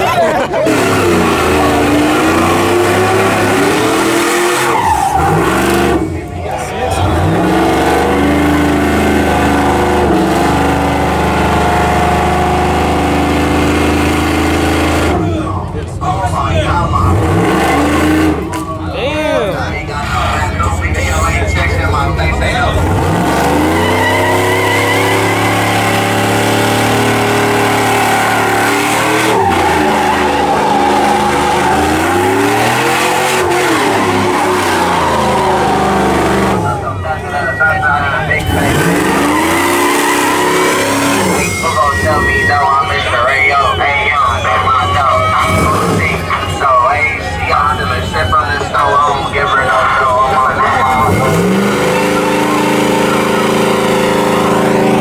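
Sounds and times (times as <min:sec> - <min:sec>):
engine at high revs: 0:00.0 - 0:06.3, 0:06.9 - 0:15.4, 0:16.9 - 0:18.6, 0:22.0 - 0:37.1, 0:38.3 - 0:42.4, 0:44.9 - 0:46.6, 0:49.1 - 0:55.0.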